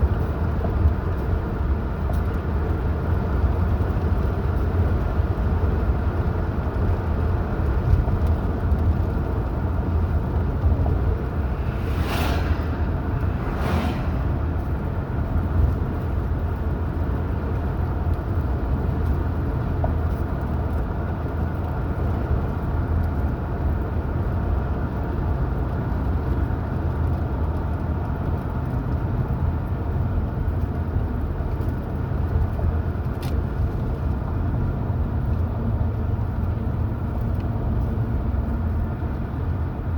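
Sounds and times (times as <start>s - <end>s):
road and engine rumble: 0.0s - 39.9s
brief whooshes: 10.6s - 15.5s.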